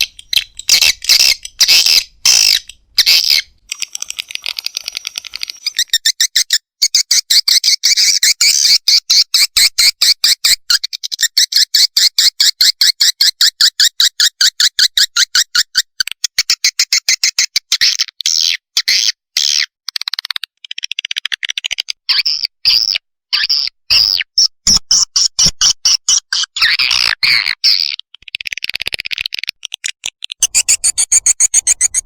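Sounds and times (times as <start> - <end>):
swiftlet chicks chirping: 0.0 - 8.2, 30.4 - 32.0.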